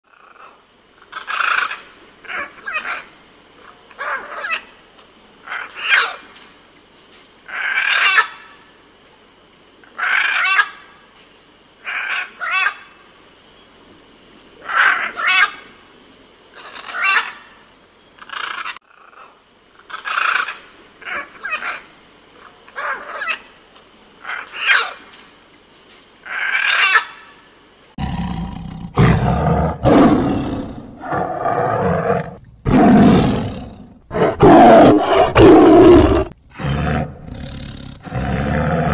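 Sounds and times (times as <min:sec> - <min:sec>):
animal calling: 0:28.0 - 0:38.9
deeper animal sound: 0:28.0 - 0:38.9.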